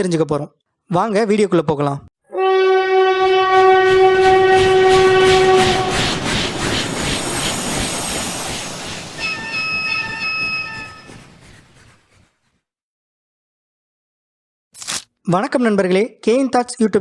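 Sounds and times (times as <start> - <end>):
higher train horn tone: 2.3 - 6.3
train horn blast: 2.3 - 6.3
train rattling on track: 3.1 - 12.5.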